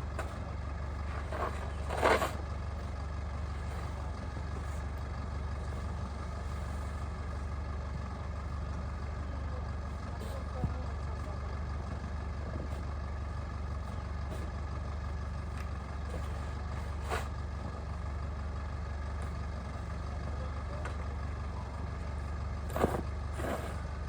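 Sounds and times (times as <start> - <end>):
engine humming steadily: 0.0 - 24.0.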